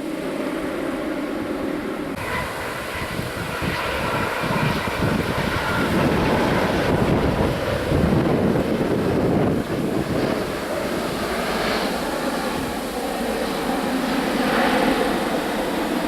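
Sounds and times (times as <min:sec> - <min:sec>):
jet airliner engines whining: 0:00.0 - 0:16.0.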